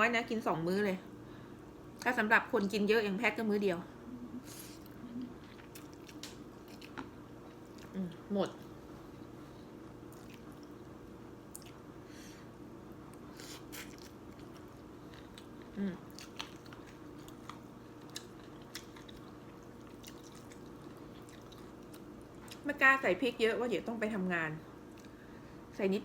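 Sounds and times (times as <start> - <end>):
steady low hum: 0.0 - 26.0
person chewing: 4.4 - 8.1, 10.0 - 11.9, 13.2 - 22.6.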